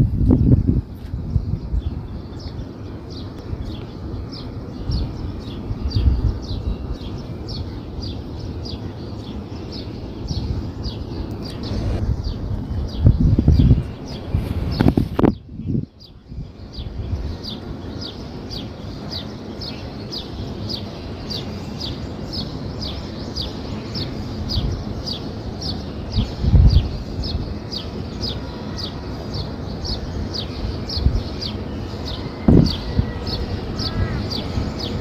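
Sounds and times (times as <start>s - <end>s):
low rumbling background: 0.0s - 28.0s
bird chirping: 1.2s - 35.0s.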